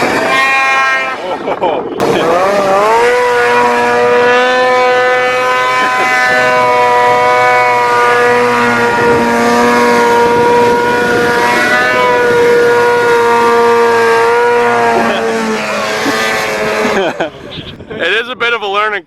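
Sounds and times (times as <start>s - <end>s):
snowmobile engine whining: 0.0s - 18.3s.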